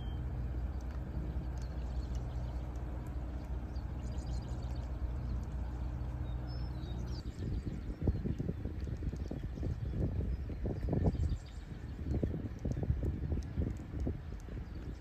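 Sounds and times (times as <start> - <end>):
vehicle engine idling: 0.0 - 9.6
birds chirping: 0.0 - 15.0.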